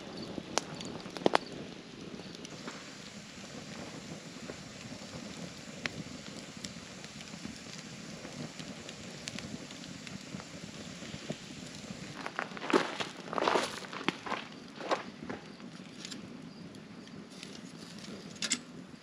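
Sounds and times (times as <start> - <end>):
campfire crackling: 0.0 - 19.0
crunching rustle: 10.8 - 16.3.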